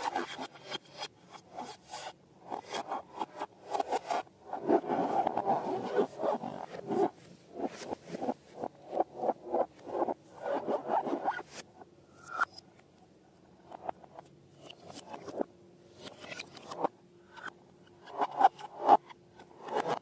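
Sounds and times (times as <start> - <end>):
balloons squeaking and rasping: 3.9 - 11.6.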